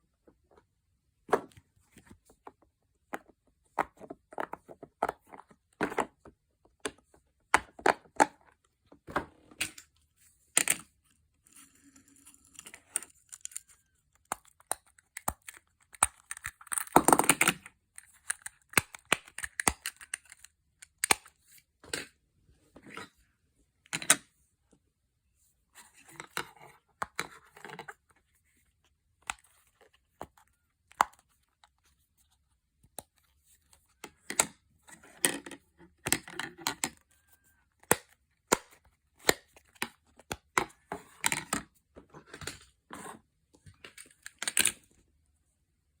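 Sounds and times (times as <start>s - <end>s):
fidget toys clicking and snapping: 13.3s - 21.3s.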